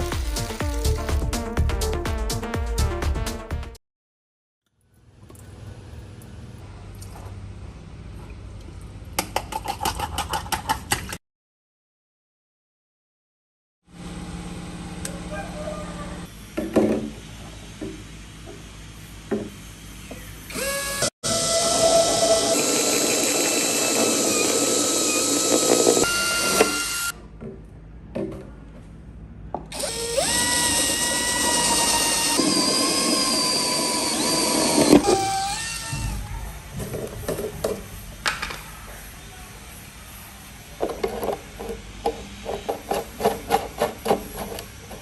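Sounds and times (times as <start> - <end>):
power tool motor whining: 20.5 - 27.1, 29.7 - 35.9.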